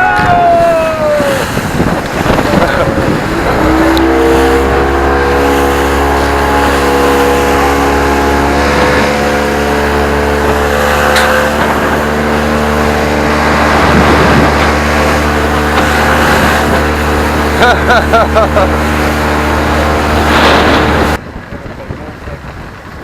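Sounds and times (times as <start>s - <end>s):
outboard motor running: 0.0s - 23.0s
wind and water rushing: 0.0s - 23.0s.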